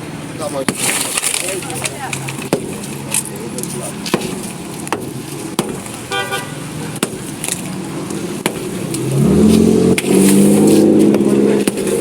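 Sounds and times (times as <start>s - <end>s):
vehicle engine revving: 2.1s - 12.0s
hammer strikes: 2.4s - 3.0s, 4.0s - 6.0s, 6.9s - 7.5s, 8.4s - 9.0s, 11.0s - 12.0s.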